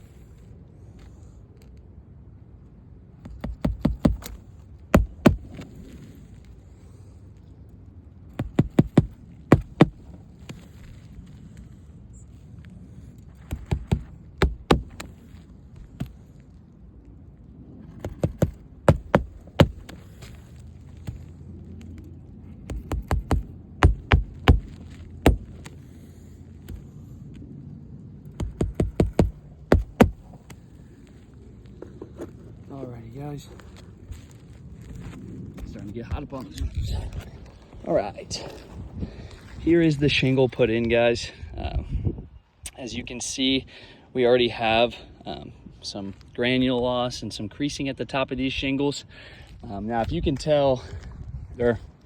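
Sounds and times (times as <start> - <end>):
hammer striking nails: 3.2 - 5.6, 8.4 - 10.1, 13.4 - 15.1, 18.0 - 20.0, 22.6 - 25.8, 28.3 - 30.2.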